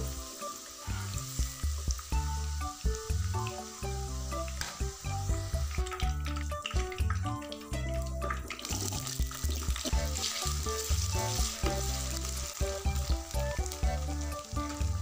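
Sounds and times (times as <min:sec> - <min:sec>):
background music: 0:00.0 - 0:15.0
potatoes sizzling in hot oil: 0:00.0 - 0:15.0.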